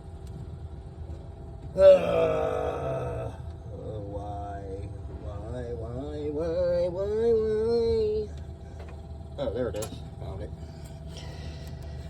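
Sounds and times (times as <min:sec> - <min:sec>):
man humming: 0:01.8 - 0:03.4.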